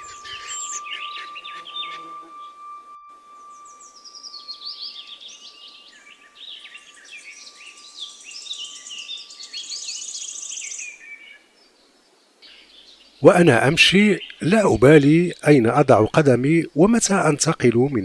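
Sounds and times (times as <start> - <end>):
faint high steady tone: 0.0 - 11.6, 13.2 - 18.0
songbirds chirping and trilling: 0.0 - 18.0.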